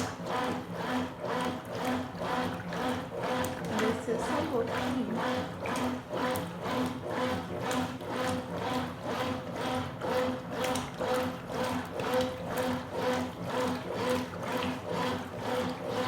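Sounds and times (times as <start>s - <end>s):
washing machine motor humming: 0.0s - 16.0s
water sloshing: 2.6s - 6.0s.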